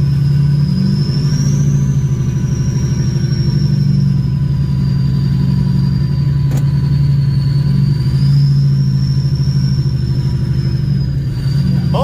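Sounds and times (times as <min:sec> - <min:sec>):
high whistle: 0:00.0 - 0:12.0
truck engine running under load: 0:00.0 - 0:12.0.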